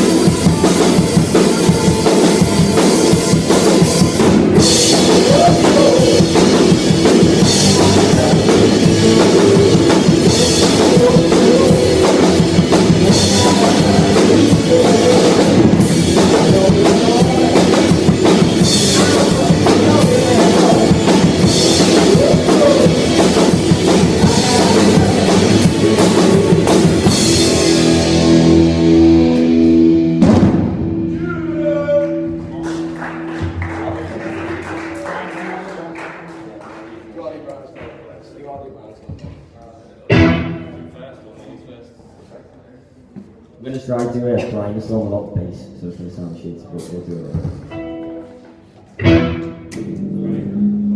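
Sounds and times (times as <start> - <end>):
drum kit with cymbals: 0.0 - 31.2
bass guitar: 0.0 - 34.9, 40.1 - 40.9, 46.8 - 50.9
electric guitar: 0.0 - 35.0, 40.1 - 40.9, 47.2 - 50.9.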